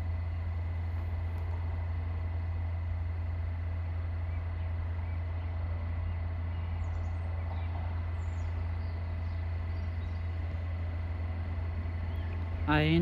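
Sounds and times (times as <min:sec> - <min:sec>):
freight train rumble: 0:00.0 - 0:13.0
birds chirping: 0:03.7 - 0:13.0.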